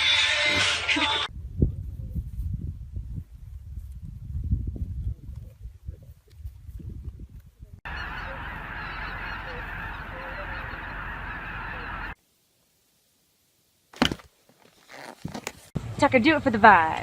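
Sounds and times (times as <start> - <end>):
chorus of animal calls: 7.9 - 12.2.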